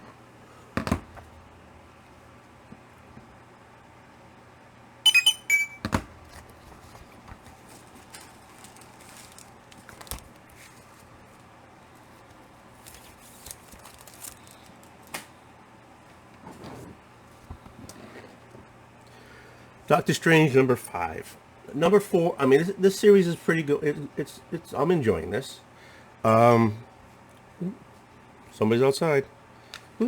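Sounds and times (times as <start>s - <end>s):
low electrical hum: 0.0s - 30.0s
comic books handled: 6.3s - 11.1s.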